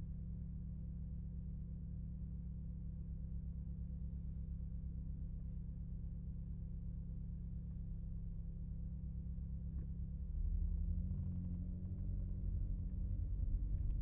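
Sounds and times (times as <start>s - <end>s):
car engine running at low revs: 5.1s - 14.0s.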